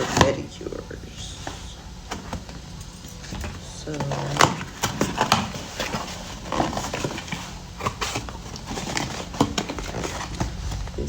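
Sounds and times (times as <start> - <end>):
packaging rustling: 0.0 - 11.0
cardboard box being opened: 4.0 - 11.0.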